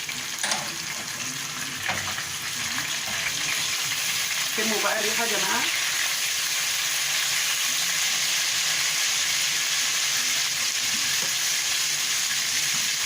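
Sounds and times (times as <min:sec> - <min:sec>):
garlic sizzling in oil: 0:00.0 - 0:13.0.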